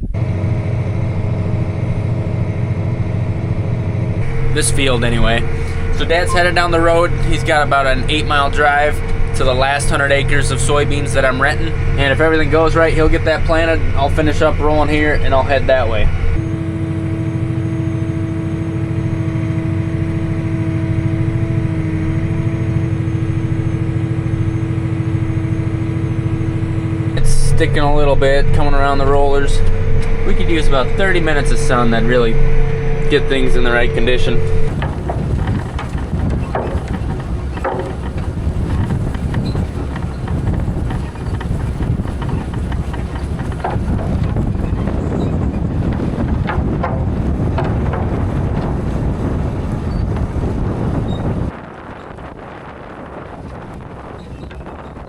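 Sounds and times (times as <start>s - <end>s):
constant humming tone: 0.0s - 55.0s
tractor engine running: 0.0s - 55.0s
wind buffeting microphone: 0.0s - 55.0s
light knocks and rattles: 34.7s - 50.4s.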